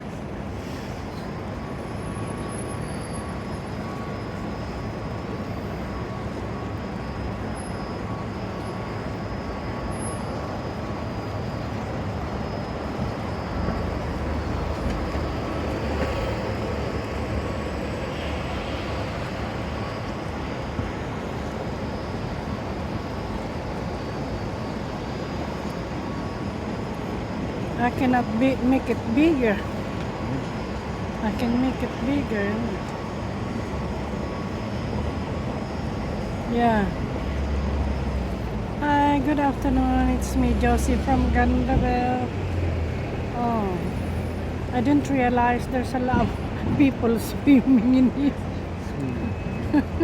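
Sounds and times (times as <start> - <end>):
vehicle rumble: 0.0 - 22.0, 22.6 - 50.0.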